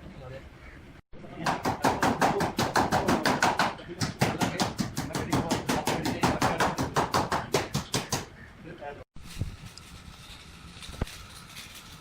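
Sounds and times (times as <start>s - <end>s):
rapid sharp knocks: 1.4s - 8.3s.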